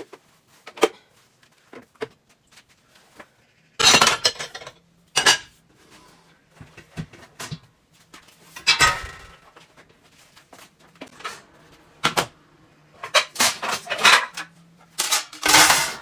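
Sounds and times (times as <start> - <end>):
dishes clattering: 3.8 - 5.5, 8.6 - 9.6, 13.0 - 16.0
dishes clinking: 3.8 - 5.5, 8.6 - 9.4.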